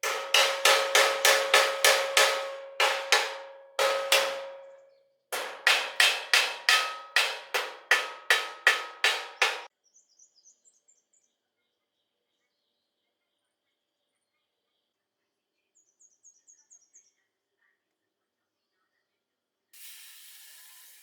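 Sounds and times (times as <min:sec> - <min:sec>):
hammer striking metal: 0:00.0 - 0:04.8, 0:05.4 - 0:09.7.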